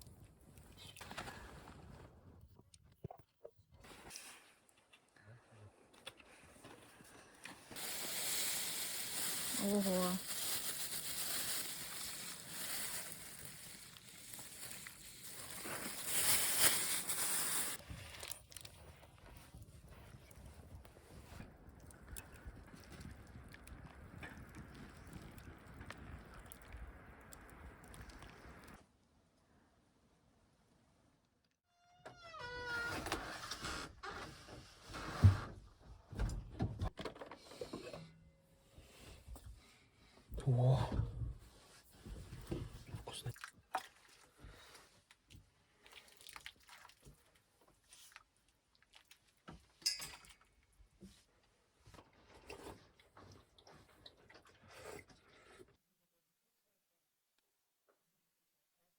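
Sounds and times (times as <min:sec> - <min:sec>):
scraping and rustling handling: 0:07.7 - 0:17.8
meat sizzling over fire: 0:07.8 - 0:17.8.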